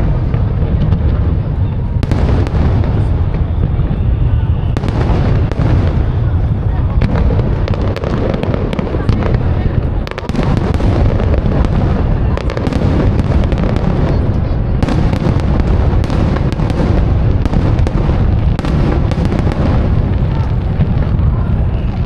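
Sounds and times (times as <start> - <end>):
firework booms: 0.0 - 22.0
firework crackles: 0.0 - 22.0.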